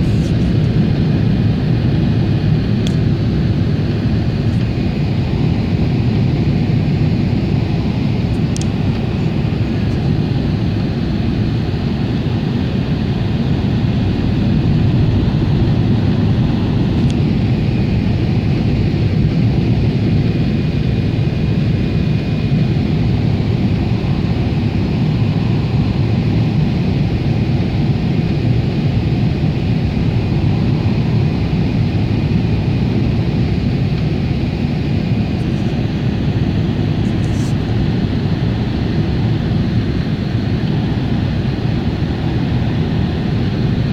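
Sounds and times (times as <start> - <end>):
airliner cabin roar: 0.0 - 43.9.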